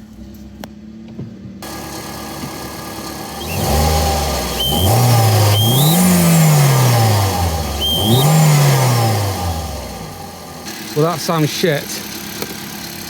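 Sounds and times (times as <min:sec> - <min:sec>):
car engine revving: 0:01.6 - 0:13.0
high whistle chirps: 0:03.3 - 0:09.4.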